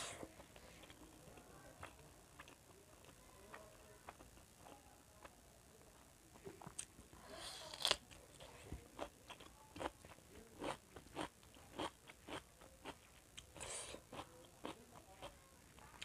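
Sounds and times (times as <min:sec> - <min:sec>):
cucumber crunching: 0:07.7 - 0:15.4.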